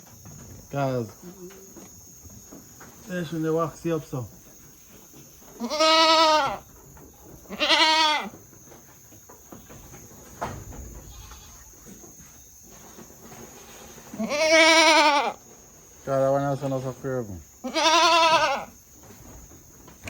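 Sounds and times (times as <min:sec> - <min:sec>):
goats bleating: 0:05.6 - 0:06.6, 0:07.5 - 0:08.3, 0:11.0 - 0:11.7, 0:14.2 - 0:15.4, 0:17.6 - 0:18.7.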